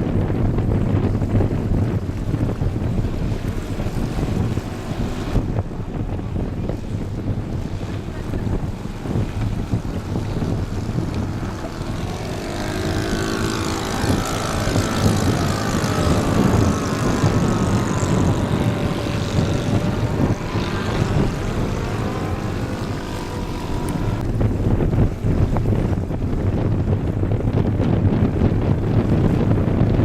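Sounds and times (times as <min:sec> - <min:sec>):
wind noise on microphone: 0:00.0 - 0:30.0
model plane propeller engine droning: 0:07.6 - 0:24.4.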